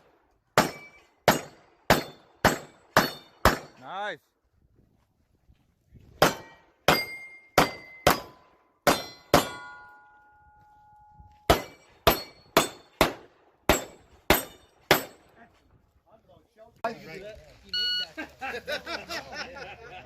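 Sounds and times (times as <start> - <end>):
pistol shots: 0.6 - 3.8, 6.2 - 9.8, 11.5 - 15.2
steel plate ringing clang: 0.6 - 3.8, 6.3 - 13.0, 13.7 - 15.2.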